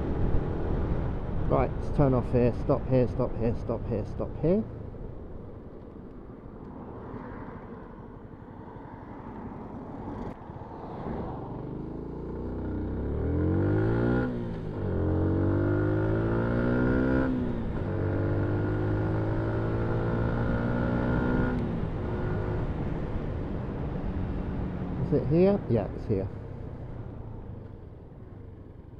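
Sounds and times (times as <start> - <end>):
motorcycle engine accelerating: 11.1 - 25.0.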